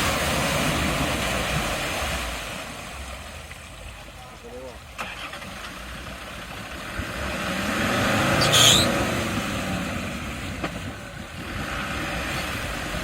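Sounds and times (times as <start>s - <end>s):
off-road vehicle passing: 4.6s - 13.0s.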